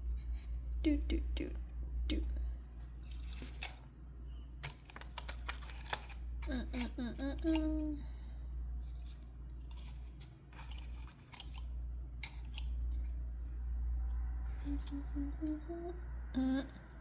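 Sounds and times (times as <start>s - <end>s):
steady low hum: 0.0s - 17.0s
metal tools clicking and snipping: 3.0s - 3.9s, 4.6s - 7.9s, 9.0s - 13.2s
person humming: 14.6s - 17.0s.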